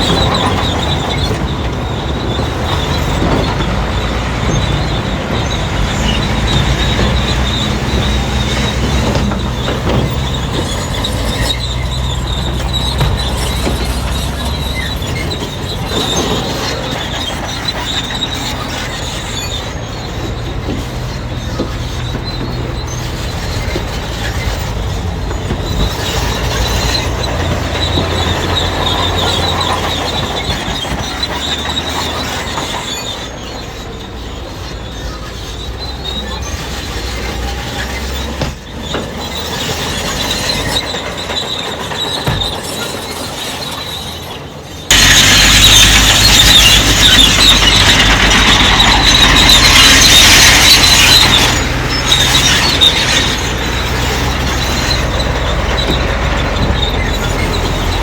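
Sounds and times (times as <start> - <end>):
diesel engine under load: 0.0 - 58.0
steel tracks squealing: 0.0 - 58.0.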